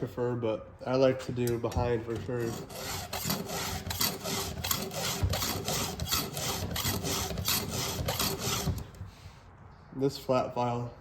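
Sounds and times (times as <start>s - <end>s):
file rasping on saw chain: 2.3s - 9.0s.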